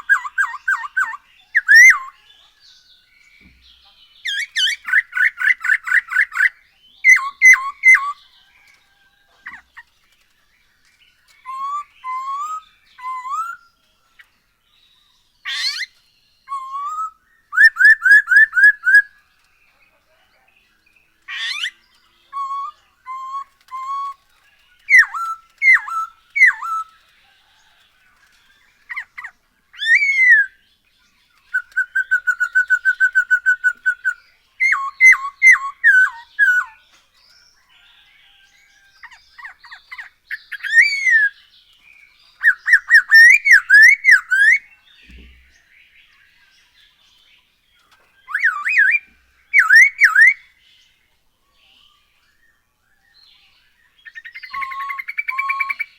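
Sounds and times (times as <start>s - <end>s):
bird singing whistled phrases: 0.0s - 2.2s, 4.3s - 8.2s, 11.4s - 13.7s, 15.5s - 19.2s, 21.3s - 24.2s, 24.8s - 26.9s, 28.9s - 30.6s, 31.5s - 36.8s, 39.1s - 41.4s, 42.4s - 45.5s, 48.2s - 50.5s, 54.0s - 55.9s.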